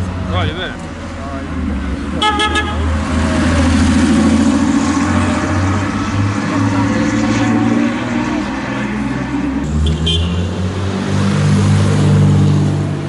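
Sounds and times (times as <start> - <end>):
car horn toot: 2.2 - 2.9, 9.8 - 10.5.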